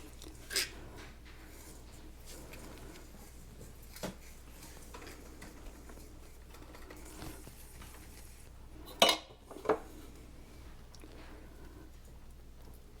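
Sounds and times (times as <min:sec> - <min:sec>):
faint scraping and handling: 0:00.0 - 0:08.7.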